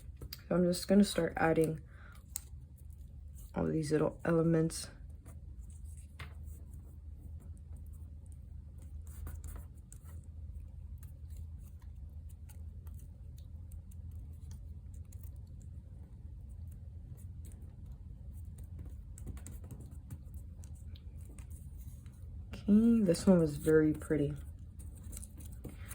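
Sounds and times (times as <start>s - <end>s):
steady low hum: 0.0s - 25.9s
paper clicks and taps on desk: 17.1s - 22.2s, 24.9s - 25.9s.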